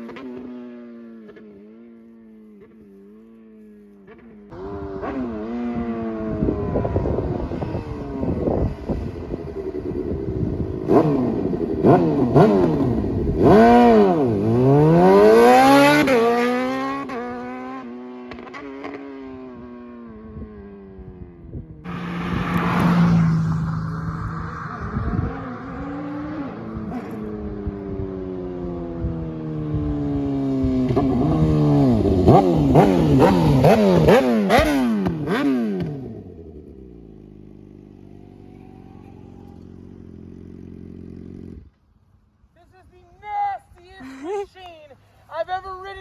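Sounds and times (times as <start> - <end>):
motorcycle engine idling and revving: 0.0 - 43.2
rush of noise: 21.9 - 27.6.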